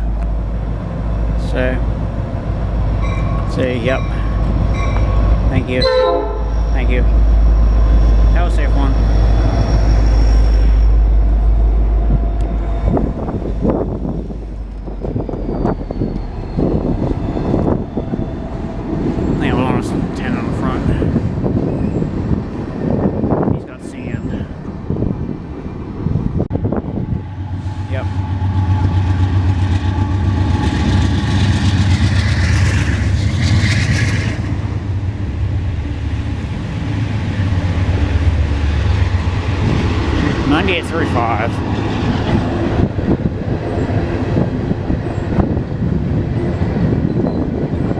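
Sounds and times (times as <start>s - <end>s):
train cars rattling: 0.0s - 47.9s
train rumbling: 0.0s - 47.9s.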